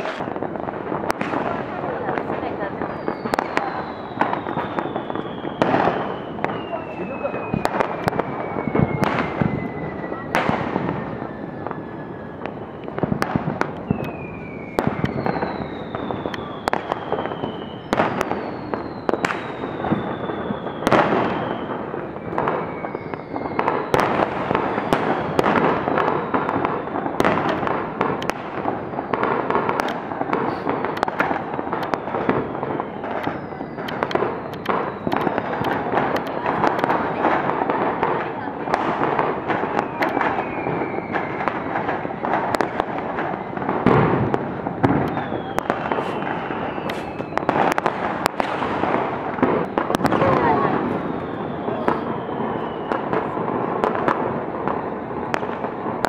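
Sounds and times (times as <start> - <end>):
fireworks bangs: 0.0 - 56.0
fireworks crackling: 0.0 - 56.0
whistling firework shells: 0.0 - 56.0.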